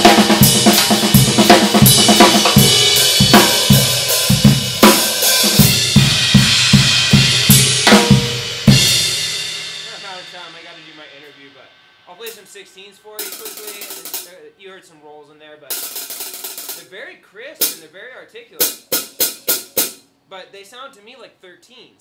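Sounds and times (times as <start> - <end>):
drum kit groove: 0.0 - 14.9, 15.6 - 20.3
cymbal hit ringing: 1.9 - 14.4.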